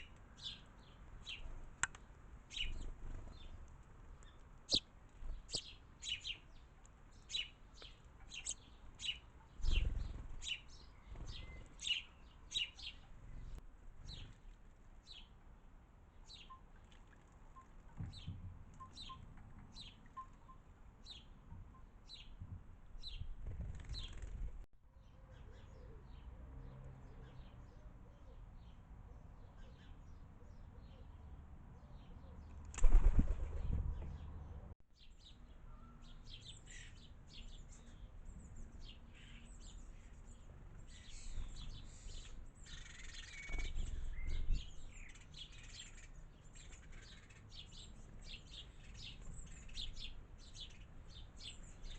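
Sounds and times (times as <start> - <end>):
small birds chirping: 0.0 - 15.4, 16.2 - 51.9
bird wingbeats flurry: 23.4 - 24.6, 32.6 - 34.2.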